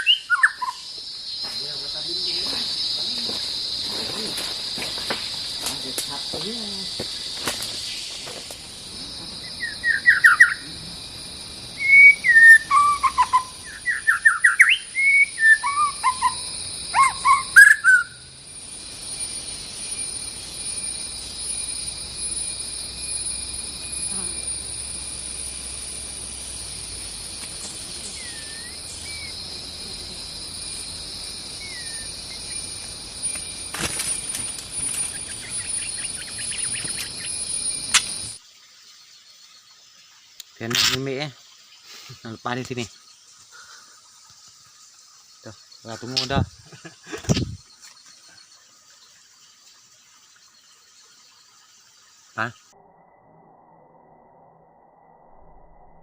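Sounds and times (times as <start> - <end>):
high insect drone: 0.0 - 56.0
bird whistling varied phrases: 11.8 - 16.4.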